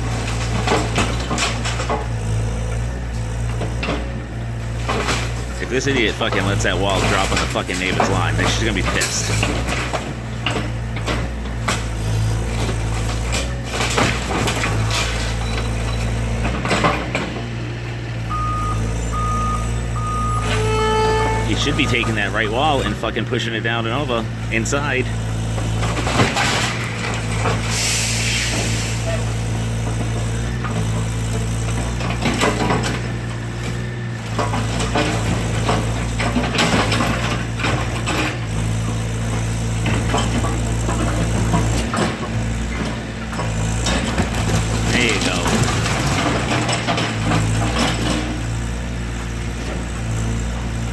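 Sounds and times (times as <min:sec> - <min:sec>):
wood and debris breaking: 0:00.0 - 0:02.1, 0:04.6 - 0:15.5, 0:24.0 - 0:27.7, 0:31.7 - 0:38.5, 0:39.3 - 0:48.6
excavator diesel engine running: 0:00.0 - 0:50.9
backup alarm beeping: 0:18.3 - 0:22.7.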